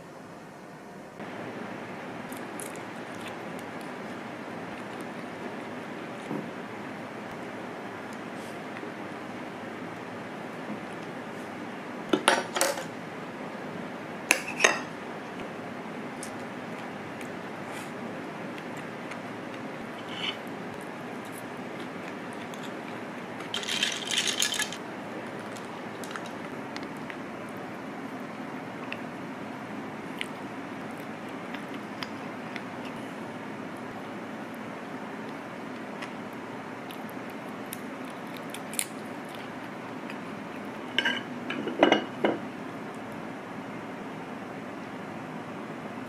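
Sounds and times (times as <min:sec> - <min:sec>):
steady background hiss: 0:00.0 - 0:46.0
small hard objects clinking: 0:23.5 - 0:24.8
kitchenware clicks and clinks: 0:23.6 - 0:24.8, 0:40.9 - 0:42.4.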